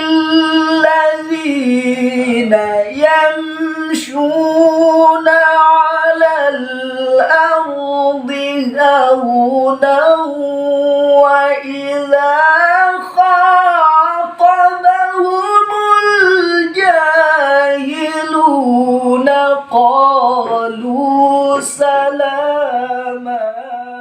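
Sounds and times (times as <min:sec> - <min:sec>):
man chanting recitation: 0:00.0 - 0:24.0.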